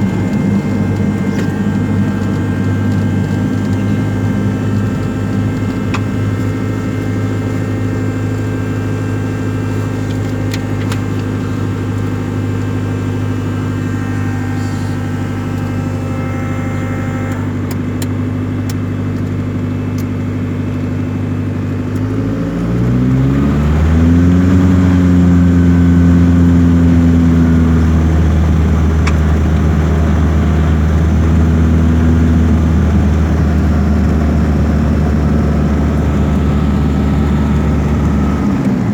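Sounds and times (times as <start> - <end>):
propeller plane engine running: 0.0 - 38.9.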